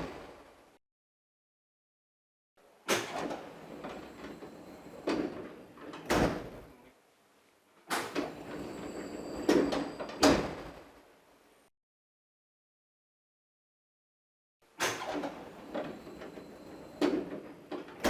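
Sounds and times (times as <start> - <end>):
sliding door air hiss: 2.8 - 6.6, 7.9 - 10.8, 14.8 - 18.0
door rollers on rail: 2.9 - 6.6, 7.9 - 10.9, 14.8 - 18.0.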